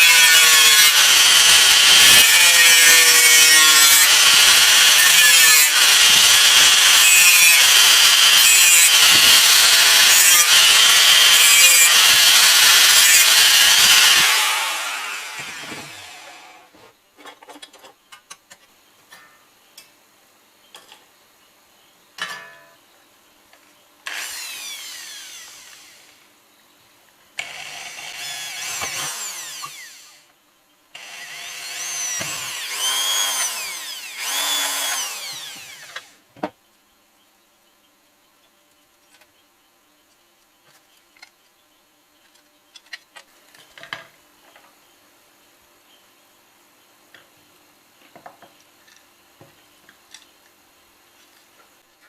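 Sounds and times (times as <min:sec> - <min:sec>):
power tool whining: 0:00.0 - 0:16.7, 0:24.1 - 0:26.2, 0:27.4 - 0:30.2, 0:31.0 - 0:36.2.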